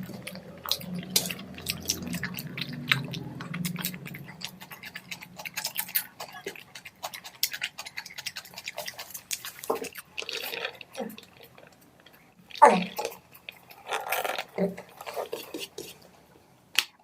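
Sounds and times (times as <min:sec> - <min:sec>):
person chewing with wet mouth sounds: 0:00.0 - 0:17.0.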